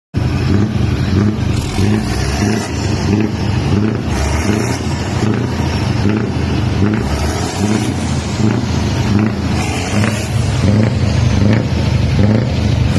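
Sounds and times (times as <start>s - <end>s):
truck diesel engine rumbling: 0.2s - 12.9s.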